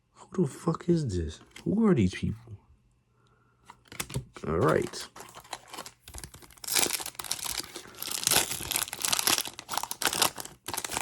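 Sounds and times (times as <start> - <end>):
wrapper tearing and crinkling: 3.9 - 11.0.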